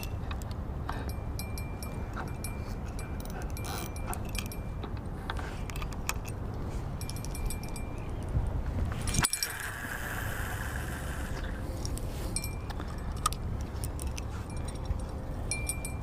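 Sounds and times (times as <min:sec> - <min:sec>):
fishing line whirring: 0:08.9 - 0:12.7
fishing reel clicking: 0:09.1 - 0:13.4.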